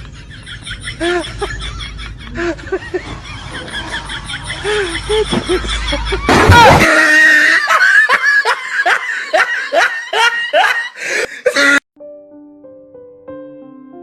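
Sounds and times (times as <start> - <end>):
loud rapid laughter: 0.0 - 11.8
soft electric piano music: 12.0 - 14.0.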